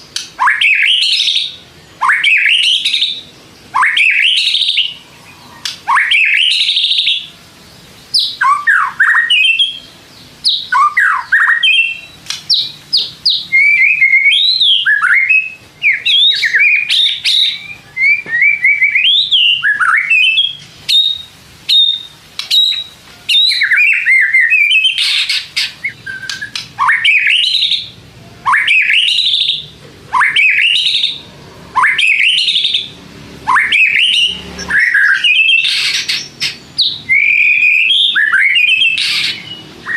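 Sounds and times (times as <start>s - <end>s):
songbird whistling: 0.0s - 7.4s, 8.1s - 39.9s.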